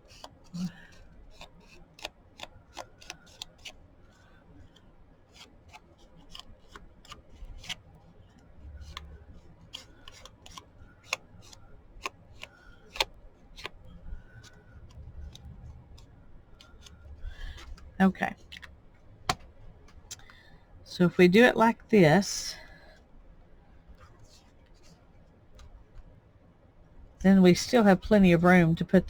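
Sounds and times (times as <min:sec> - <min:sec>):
paper and tools clicking and tapping: 0:00.0 - 0:17.9.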